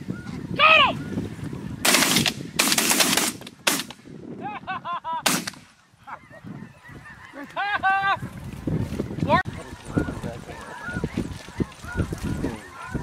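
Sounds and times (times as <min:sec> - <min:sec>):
shotgun blasts: 0:01.8 - 0:04.0, 0:05.3 - 0:05.7
geese honking: 0:05.8 - 0:08.3, 0:09.3 - 0:13.0.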